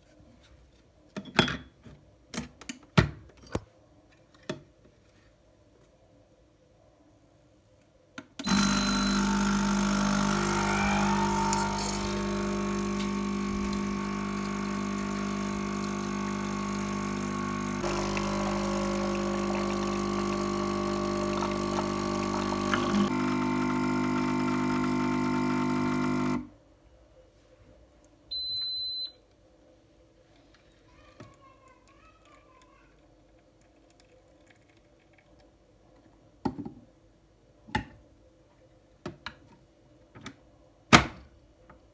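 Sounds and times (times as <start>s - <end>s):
loud machine hum: 8.5s - 26.4s.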